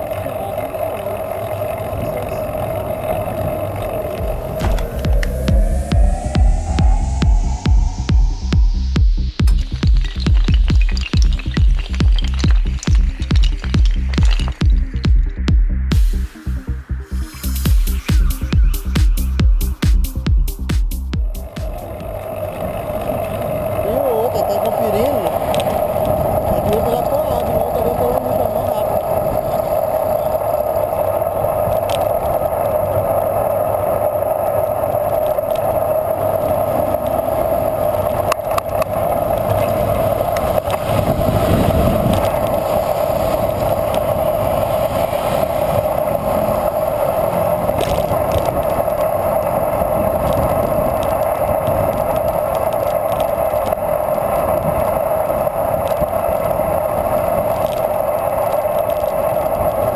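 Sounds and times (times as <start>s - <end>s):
sharp clicks and rattles: 0.0s - 16.0s
bicycle tyres rolling on road: 0.0s - 59.9s.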